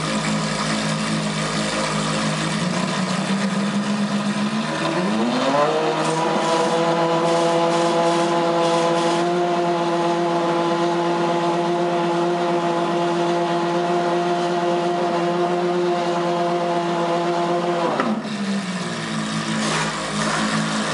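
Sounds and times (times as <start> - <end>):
car engine idling: 0.0 - 5.0.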